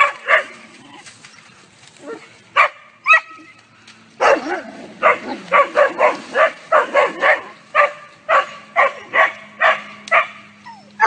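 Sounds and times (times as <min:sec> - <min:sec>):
dogs barking: 0:00.0 - 0:00.8, 0:02.0 - 0:03.6, 0:04.2 - 0:11.0
dog yelp: 0:02.0 - 0:03.6, 0:04.2 - 0:11.0.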